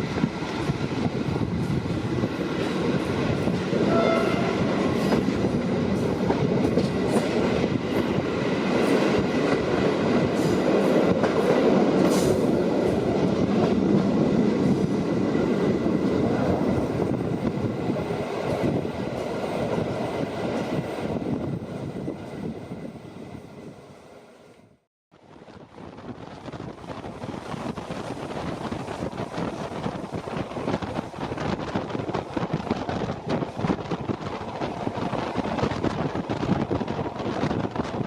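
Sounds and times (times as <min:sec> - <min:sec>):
train rumble: 0:00.0 - 0:23.4, 0:25.2 - 0:38.0
train wheels clicking over rails: 0:04.8 - 0:20.8.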